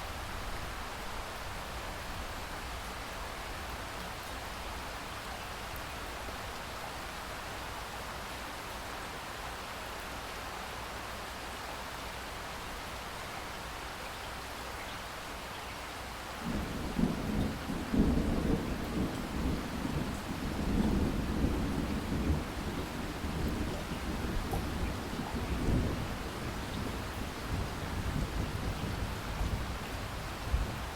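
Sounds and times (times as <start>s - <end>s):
steady rain falling: 0.0s - 30.9s
low rumble of thunder: 16.4s - 30.9s.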